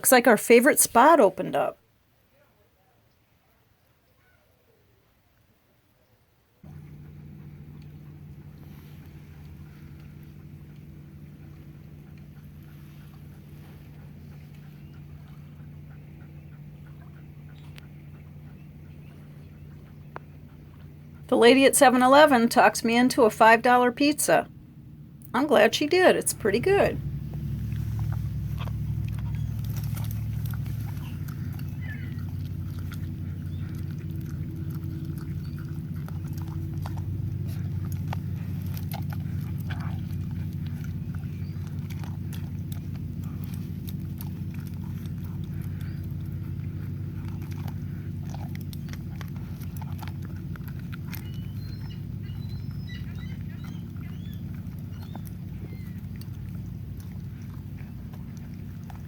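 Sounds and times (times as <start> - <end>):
steady low hum: 6.6 - 59.0
dog chewing and crunching: 6.7 - 21.3, 26.6 - 59.0.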